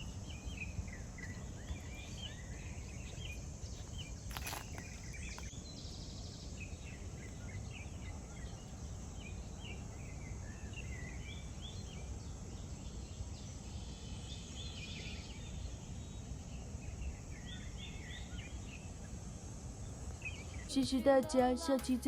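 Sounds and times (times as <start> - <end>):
birds chirping: 0.0 - 21.5.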